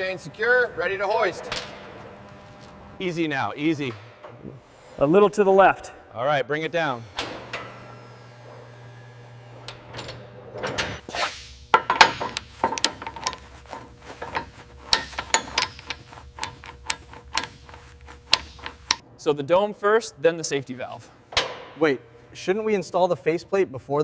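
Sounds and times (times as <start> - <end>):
low steady hum: 0.0 - 24.0
tools clicking and knocking on metal: 11.8 - 19.0, 21.3 - 21.7.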